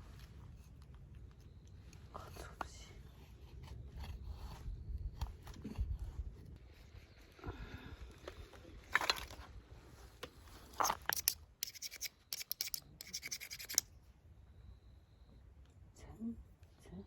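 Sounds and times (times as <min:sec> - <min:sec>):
rasping strokes: 0:10.7 - 0:13.9.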